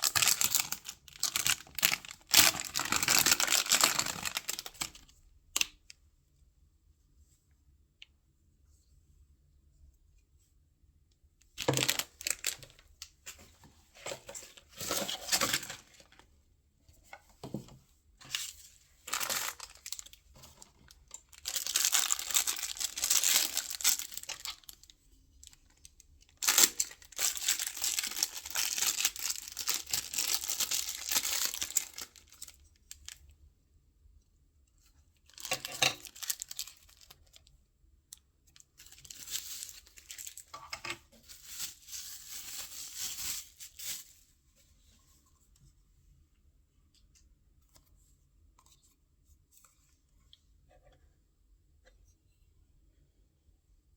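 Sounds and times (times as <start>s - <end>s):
packaging tearing and crinkling: 0.0s - 5.7s, 11.6s - 12.8s, 14.2s - 16.1s, 19.1s - 20.2s, 21.2s - 33.2s, 35.3s - 37.4s, 38.8s - 40.5s, 41.3s - 44.0s.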